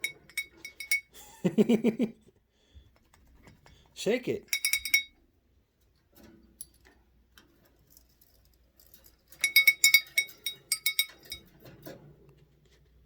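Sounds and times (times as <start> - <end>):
small metal bell jingling: 0.0 - 1.5, 4.5 - 5.2, 8.0 - 11.6.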